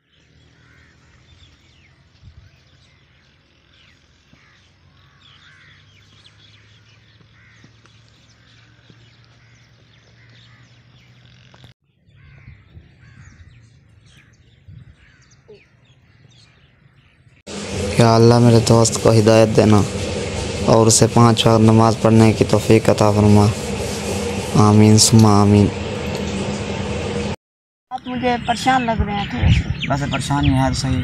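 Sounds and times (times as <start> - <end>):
birds chirping: 0.0 - 31.0
low steady hum: 17.5 - 27.4.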